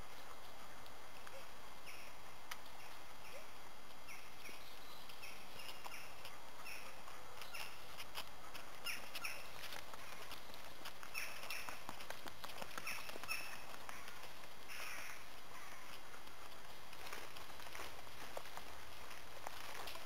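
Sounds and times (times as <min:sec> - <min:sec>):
steady outdoor hiss: 0:00.0 - 0:20.0
bird chirping: 0:02.8 - 0:08.0, 0:08.8 - 0:12.0, 0:12.7 - 0:16.0.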